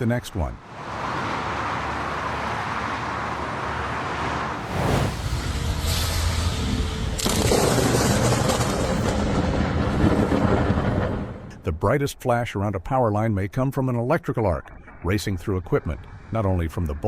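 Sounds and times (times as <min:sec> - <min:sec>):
vehicle and road noise: 0:00.0 - 0:11.6.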